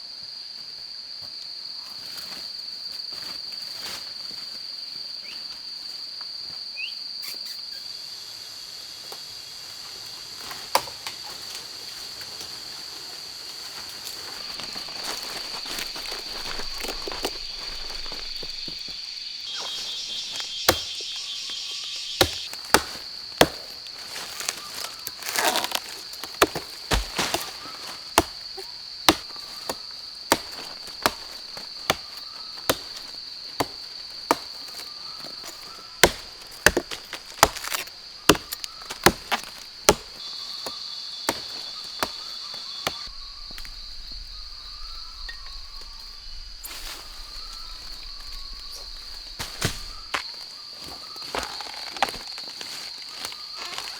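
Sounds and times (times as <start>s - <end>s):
high insect drone: 0.0s - 53.9s
rustle: 1.2s - 6.4s, 7.3s - 53.9s
sharp chopping strikes: 19.6s - 23.8s, 25.2s - 28.4s, 29.1s - 34.6s, 35.5s - 43.1s.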